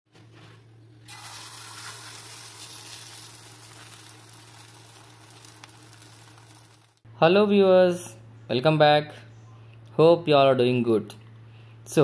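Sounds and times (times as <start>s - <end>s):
batter sizzling in hot oil: 1.0s - 7.0s.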